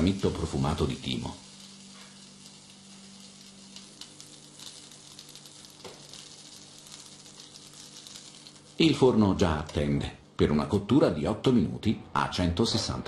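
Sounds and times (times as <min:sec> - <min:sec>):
meat sizzling in a frying pan: 0:00.0 - 0:09.2
low steady hum: 0:00.0 - 0:13.0.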